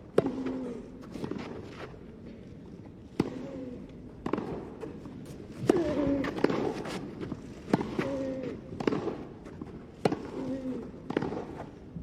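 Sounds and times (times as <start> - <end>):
tennis ball struck by racket: 4.2 - 4.8, 7.6 - 8.1, 8.8 - 11.7.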